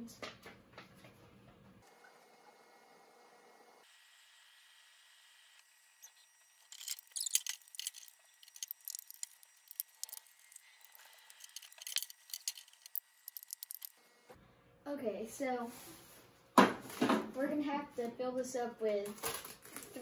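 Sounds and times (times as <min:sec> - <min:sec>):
crisp rustling: 0:06.7 - 0:13.9, 0:19.0 - 0:20.0
small clicks of objects handled: 0:06.7 - 0:13.9.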